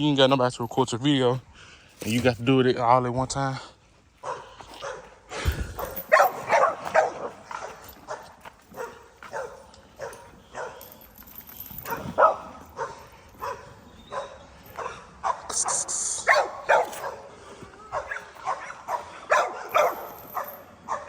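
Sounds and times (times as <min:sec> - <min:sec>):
dogs barking: 0:04.2 - 0:11.0, 0:11.8 - 0:21.0.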